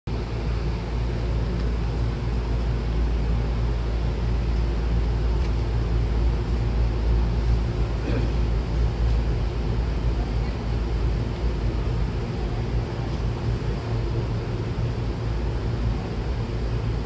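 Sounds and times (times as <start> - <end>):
train equipment hum and rumble: 0.1 - 17.0.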